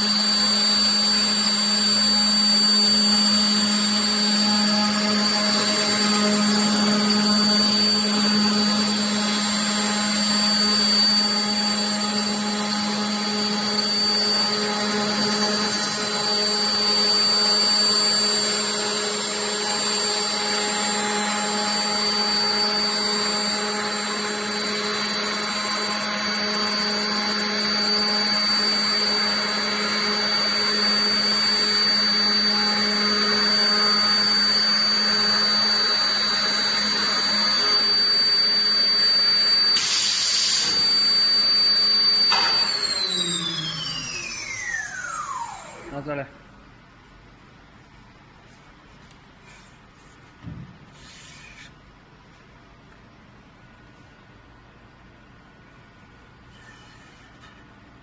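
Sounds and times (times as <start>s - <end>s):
cnc router spindle humming and whining: 0.0s - 46.9s.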